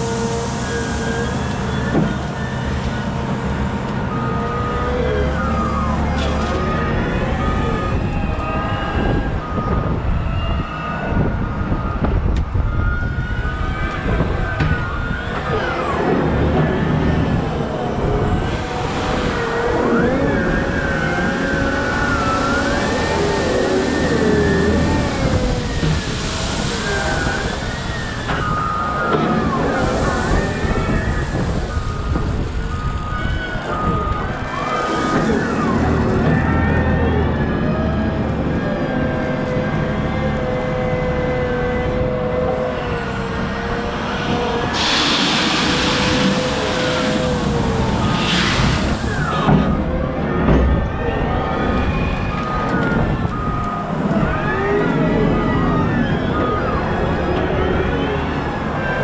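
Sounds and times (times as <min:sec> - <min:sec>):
hydraulic whine: 0:00.0 - 0:59.0
heavy diesel rumble: 0:13.5 - 0:59.0.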